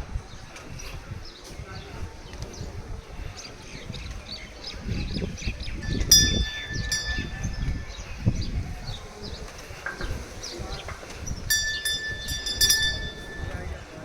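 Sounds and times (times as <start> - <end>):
small birds chirping: 0.1 - 14.0
small metal bell ringing: 5.8 - 8.8, 11.5 - 14.0.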